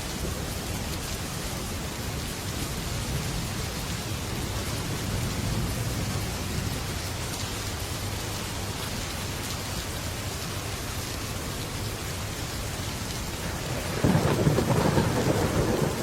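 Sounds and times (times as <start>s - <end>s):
heavy rain on a metal roof: 0.0s - 16.0s
low thunder rumble: 3.0s - 7.2s, 13.4s - 16.0s.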